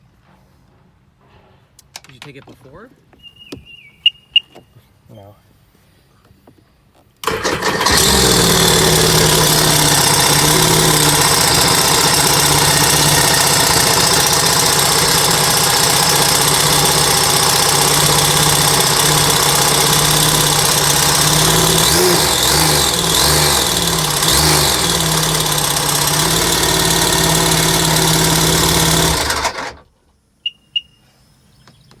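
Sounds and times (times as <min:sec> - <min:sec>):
watercraft engine idling: 0:07.2 - 0:29.8
engine throttle blips: 0:07.2 - 0:29.9.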